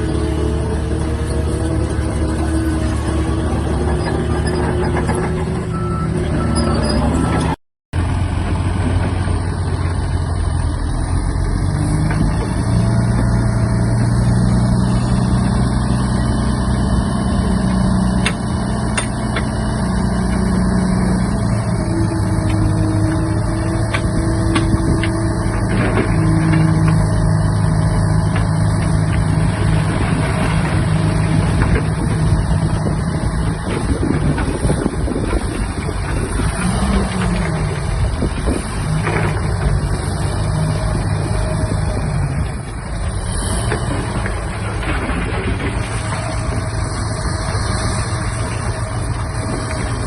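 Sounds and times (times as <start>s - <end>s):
bulldozer diesel engine running: 0.0s - 50.0s.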